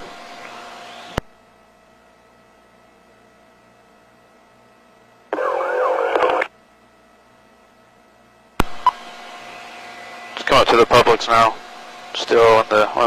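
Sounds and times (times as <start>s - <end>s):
garbled radio transmission: 5.3s - 6.5s, 10.4s - 11.6s
radio static hiss: 5.3s - 6.5s, 8.6s - 13.0s.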